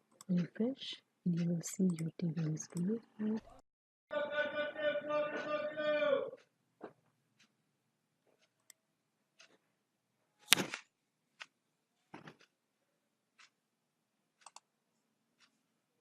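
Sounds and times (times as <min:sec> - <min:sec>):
computer mouse clicks: 0:01.4 - 0:02.9, 0:10.4 - 0:10.8, 0:14.4 - 0:14.7.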